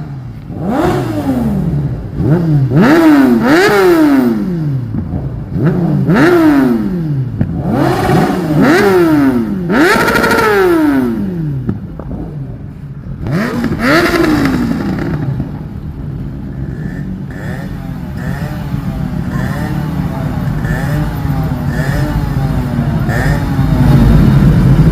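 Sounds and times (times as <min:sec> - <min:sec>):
motorcycle engine revving: 0:00.0 - 0:24.9
motorcycle engine idling: 0:11.8 - 0:24.9.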